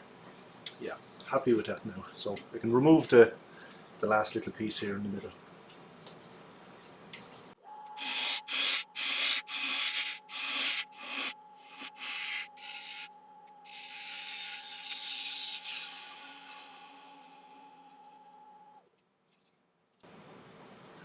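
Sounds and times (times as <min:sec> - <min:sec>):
lathe humming: 0:08.0 - 0:13.1, 0:13.7 - 0:18.4
turning tool scraping wood: 0:08.0 - 0:13.1, 0:13.7 - 0:17.9.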